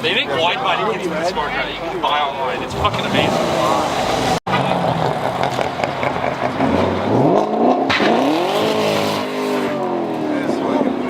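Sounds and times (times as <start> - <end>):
car engine revving: 2.5 - 11.0.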